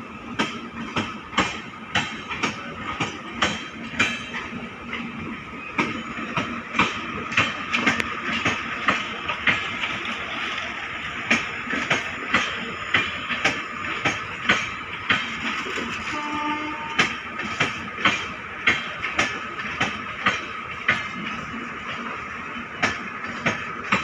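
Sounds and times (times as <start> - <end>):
rumble of wheels on rail: 0.0 - 24.0
train wheels clickety-clack: 0.0 - 24.0.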